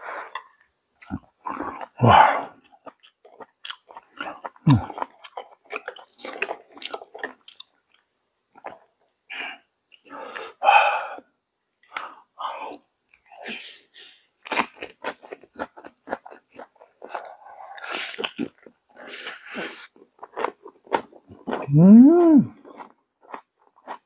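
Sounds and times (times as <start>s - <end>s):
crisp chewing crunches: 2.7s - 8.0s, 14.5s - 24.0s
wet mouth sounds: 3.8s - 5.4s, 21.4s - 22.9s.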